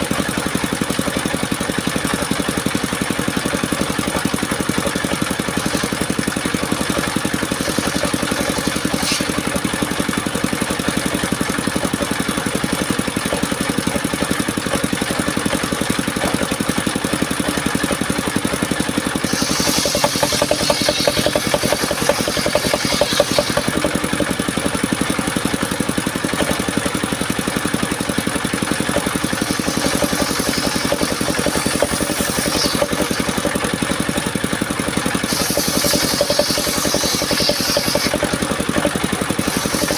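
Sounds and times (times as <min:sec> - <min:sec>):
sawmill engine throbbing: 0:00.0 - 0:39.9
saw blade cutting wood hiss: 0:05.6 - 0:06.1, 0:06.8 - 0:09.8, 0:19.1 - 0:24.3, 0:29.3 - 0:33.6, 0:35.1 - 0:39.9.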